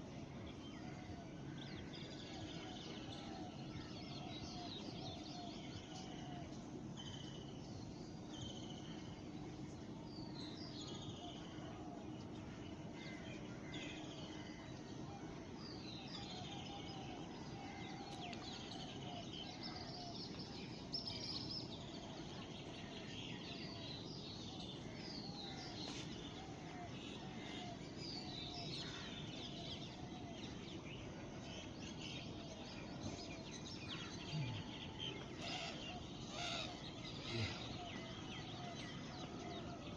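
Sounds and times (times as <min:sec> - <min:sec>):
steady background hum: 0:00.0 - 0:39.9
small birds chirping and trilling: 0:00.3 - 0:39.9
lower bird call: 0:34.0 - 0:39.6.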